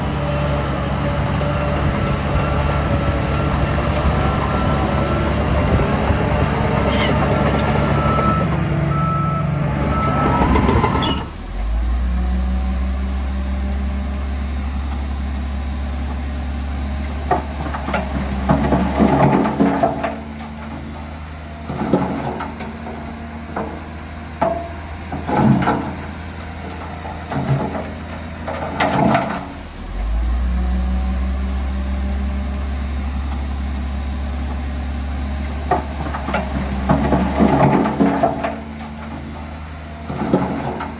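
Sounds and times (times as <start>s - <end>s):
heavy diesel engines droning: 0.0s - 40.9s
metallic clanks and squeals: 1.5s - 2.0s, 6.8s - 11.5s
reversing beeper: 1.5s - 5.8s, 6.8s - 12.0s.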